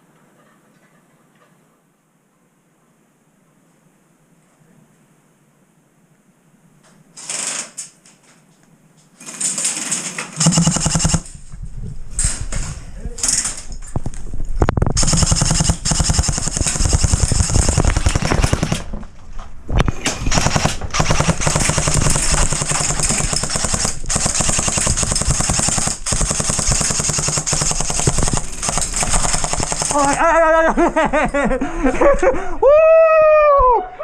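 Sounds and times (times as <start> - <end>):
airsoft guns firing rapidly: 9.2 - 11.4, 15.0 - 19.0, 20.2 - 30.2.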